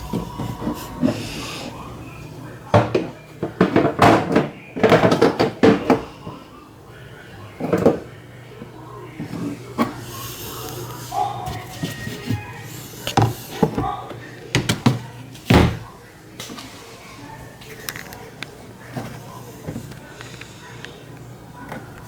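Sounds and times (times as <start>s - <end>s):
washing machine parts clattering: 0.0s - 6.5s, 7.5s - 16.7s.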